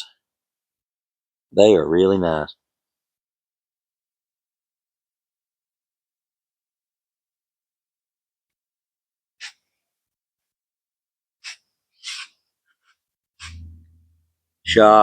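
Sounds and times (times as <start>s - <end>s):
short breaths: 11.4s - 13.6s
low hum: 13.4s - 15.0s.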